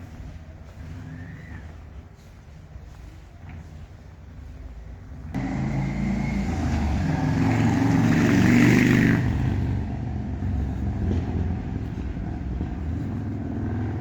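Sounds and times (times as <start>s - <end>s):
car passing by: 5.3s - 14.0s.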